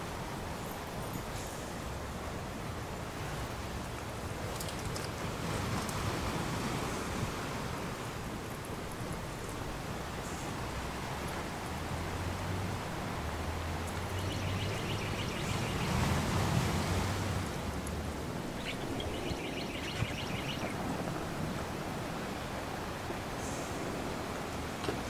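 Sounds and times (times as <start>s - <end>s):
wind: 0.0s - 25.0s
bird chirping trills: 14.1s - 16.1s, 18.6s - 20.8s.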